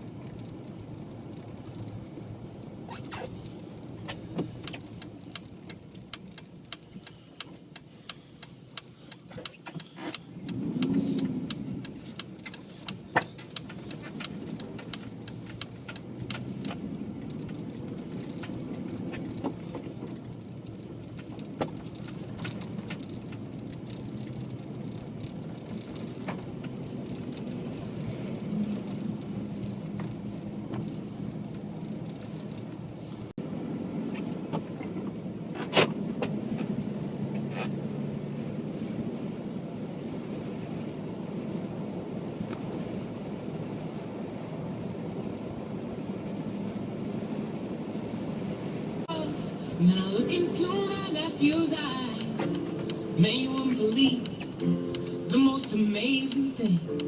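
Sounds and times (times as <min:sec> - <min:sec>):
ticks and rattles: 0:00.0 - 0:33.3
engine and tyre rumble: 0:00.0 - 0:57.0.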